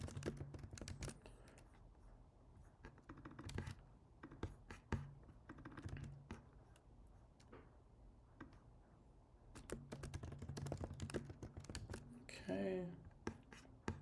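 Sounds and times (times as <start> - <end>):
faint keyboard keystrokes: 0.0 - 1.8, 9.5 - 12.2.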